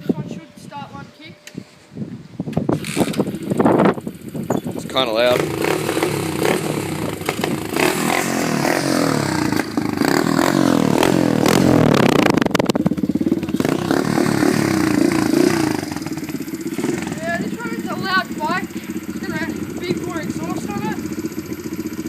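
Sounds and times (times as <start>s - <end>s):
motorbike engine revving: 2.6s - 22.0s.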